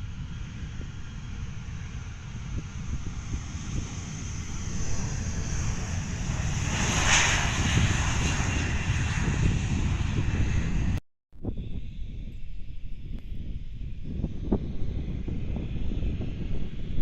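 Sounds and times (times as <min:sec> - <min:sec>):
jet airliner passing: 0:00.0 - 0:11.0, 0:11.6 - 0:17.0.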